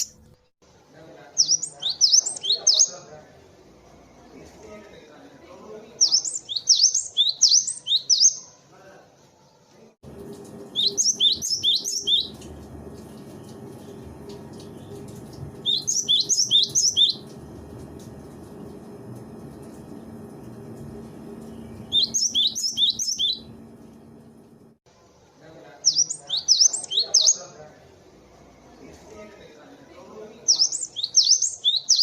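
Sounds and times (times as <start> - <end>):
low steady hum: 10.0 - 24.8
bird singing high notes: 10.7 - 12.5, 15.6 - 17.3, 21.4 - 23.6.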